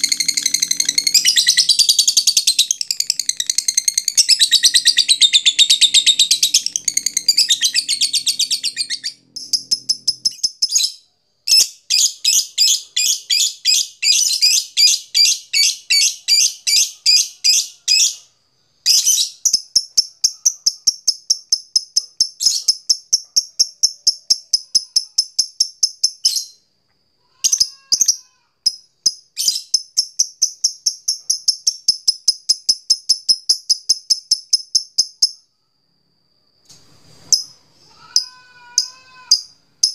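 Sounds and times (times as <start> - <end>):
lovebird chattering: 0.0 - 10.9.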